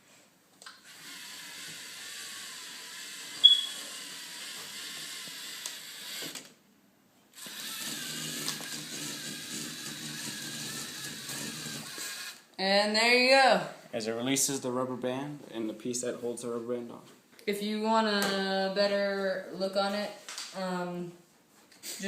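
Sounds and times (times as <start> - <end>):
toy robot motors whirring: 0.8 - 6.6, 7.4 - 12.5.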